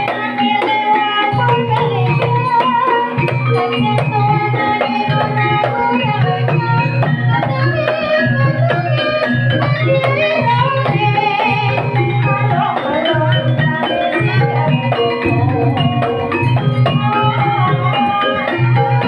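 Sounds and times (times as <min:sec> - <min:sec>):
hand drums: 0:00.0 - 0:19.0
struck pitched notes: 0:14.1 - 0:19.0.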